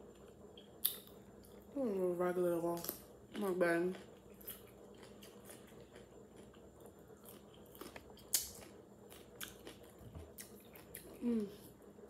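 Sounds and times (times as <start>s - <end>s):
cucumber crunching: 2.8s - 11.3s.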